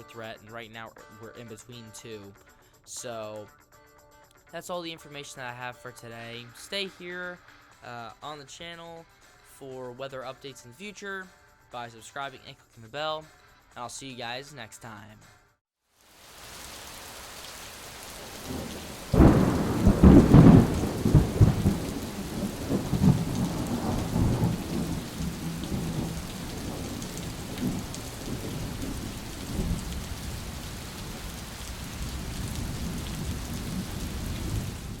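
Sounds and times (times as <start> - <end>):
steady rain: 16.0 - 35.0
thunder rumbling: 18.2 - 35.0.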